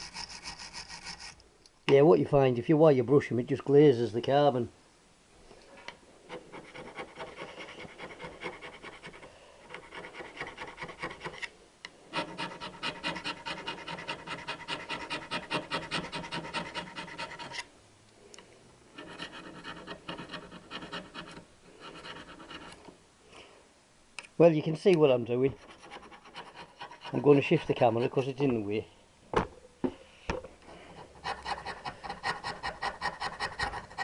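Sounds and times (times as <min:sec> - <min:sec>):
metal scraper rasping on metal: 0:00.0 - 0:01.4, 0:06.3 - 0:11.4, 0:12.1 - 0:17.7, 0:19.0 - 0:22.8, 0:25.5 - 0:28.4, 0:30.9 - 0:34.0.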